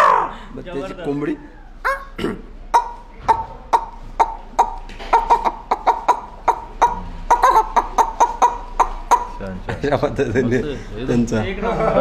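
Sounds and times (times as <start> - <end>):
man imitating hen clucking: 1.8 - 9.5.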